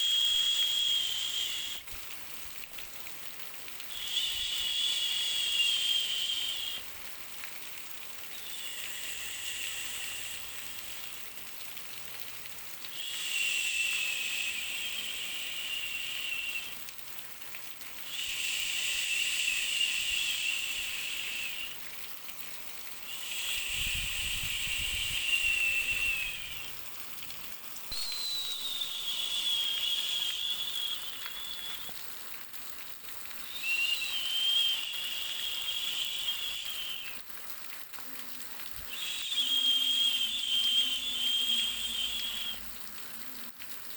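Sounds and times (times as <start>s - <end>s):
faint steady hiss: 0.0s - 43.9s
high-pitched insect trills: 3.9s - 6.8s, 8.3s - 11.2s, 13.0s - 16.7s, 18.1s - 21.8s, 23.1s - 26.8s, 27.9s - 32.0s, 33.4s - 37.2s, 38.8s - 42.7s.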